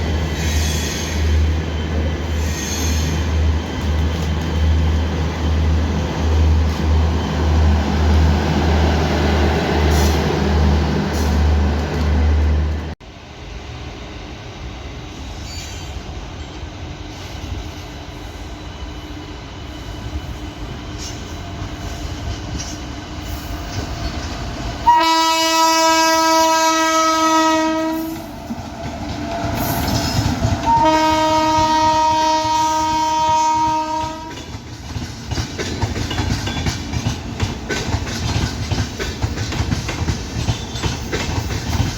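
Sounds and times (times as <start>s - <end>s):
train wheels rumbling on rails: 0.0s - 41.9s
locomotive horn blasts: 24.8s - 28.2s, 30.6s - 34.4s.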